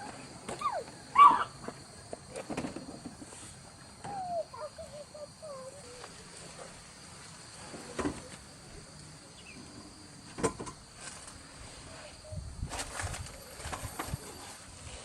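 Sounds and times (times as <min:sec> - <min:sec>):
crickets chirring: 0:00.0 - 0:15.0
wavering animal call: 0:04.0 - 0:06.2.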